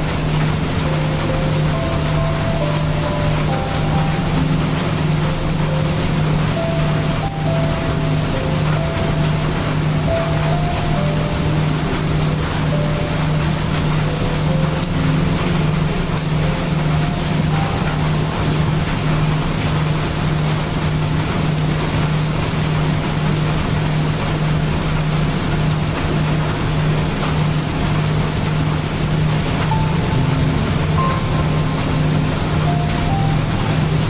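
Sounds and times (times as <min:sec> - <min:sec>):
heavy rain: 0:00.0 - 0:34.0
brown noise rumble: 0:26.7 - 0:34.0.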